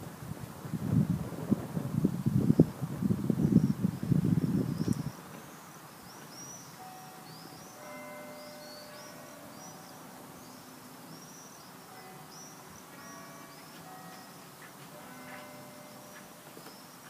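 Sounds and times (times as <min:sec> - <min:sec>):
small birds chirping: 0:03.4 - 0:17.0
faint bell-like ringing tones: 0:06.8 - 0:17.0.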